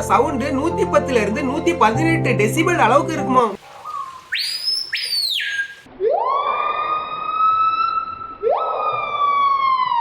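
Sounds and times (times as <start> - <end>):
bird whistled calls: 3.8 - 5.9.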